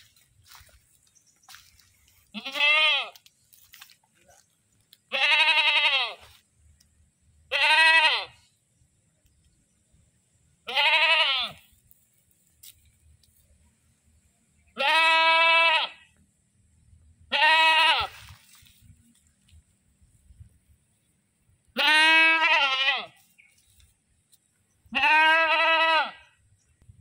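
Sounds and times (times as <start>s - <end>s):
goat bleating loudly: 2.3s - 3.2s, 5.1s - 6.4s, 7.5s - 8.4s, 10.7s - 11.6s, 14.8s - 16.1s, 17.3s - 18.2s, 21.8s - 23.2s, 24.9s - 26.3s.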